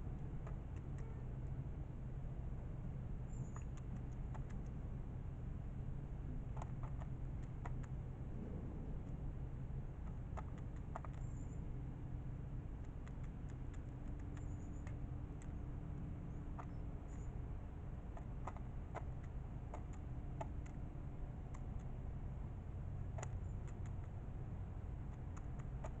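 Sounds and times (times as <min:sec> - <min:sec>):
steady low hum: 0:00.0 - 0:26.0
birds pecking taps and clicks: 0:00.4 - 0:01.6, 0:03.4 - 0:04.8, 0:06.5 - 0:08.0, 0:10.0 - 0:11.4, 0:12.7 - 0:22.2, 0:23.0 - 0:26.0.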